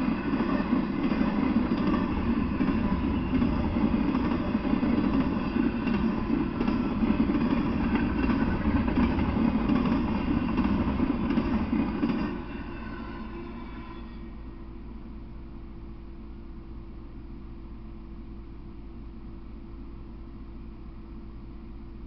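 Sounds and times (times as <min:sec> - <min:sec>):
freight train wheels clattering: 0:00.0 - 0:13.3.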